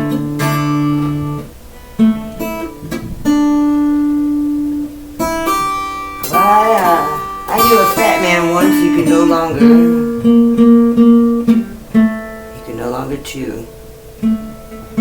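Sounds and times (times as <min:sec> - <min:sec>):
acoustic guitar strumming: 0:00.0 - 0:15.0
person singing wordlessly: 0:06.2 - 0:10.2.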